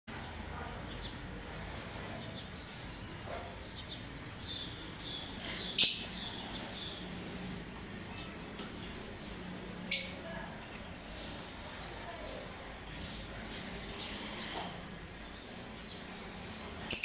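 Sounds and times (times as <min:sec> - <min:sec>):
lovebirds chirping: 0:01.9 - 0:17.0
loud sharp bird calls: 0:02.2 - 0:07.9.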